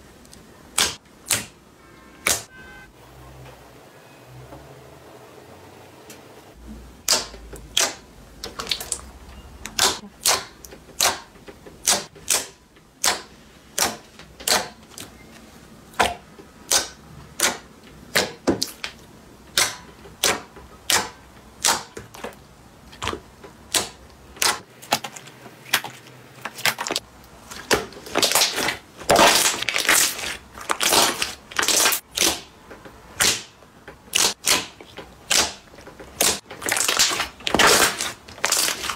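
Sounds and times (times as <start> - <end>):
crunchy slime crackling: 24.8 - 32.5, 34.1 - 38.9.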